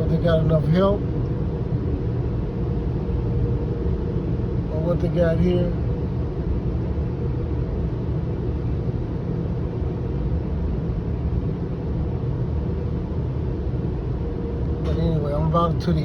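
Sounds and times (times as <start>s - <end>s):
car wash machinery rumbling: 13.3s - 16.0s.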